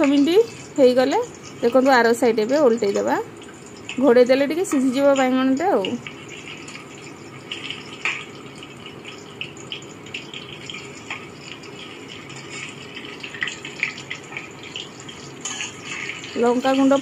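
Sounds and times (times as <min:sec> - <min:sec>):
food sizzling in oil: 0:00.0 - 0:17.0
metal spatula scraping pan: 0:15.4 - 0:16.5.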